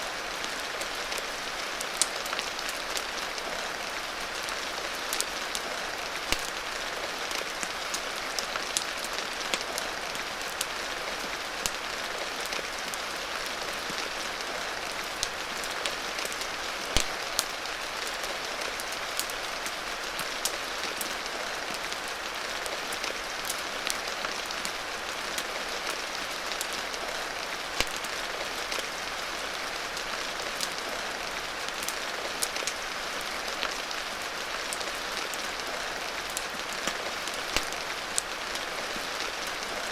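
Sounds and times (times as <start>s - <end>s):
rain hiss: 0.0s - 39.9s
wood fire crackling and popping: 5.1s - 6.6s, 11.6s - 11.8s, 16.2s - 17.6s, 27.8s - 28.1s, 36.3s - 38.6s.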